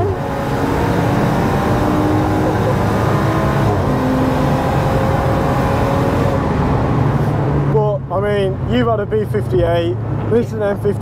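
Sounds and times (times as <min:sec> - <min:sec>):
car engine running hard: 0:00.0 - 0:11.0
road noise: 0:00.0 - 0:11.0.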